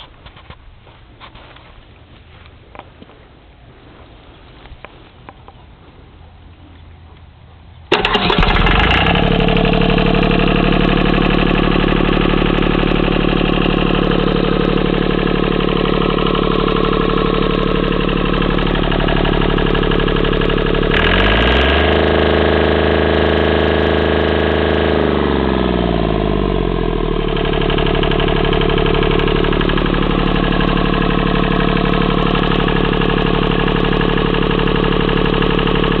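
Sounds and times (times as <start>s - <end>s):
diesel engine starting and idling: 7.8s - 36.0s
diesel engine revving: 7.9s - 36.0s.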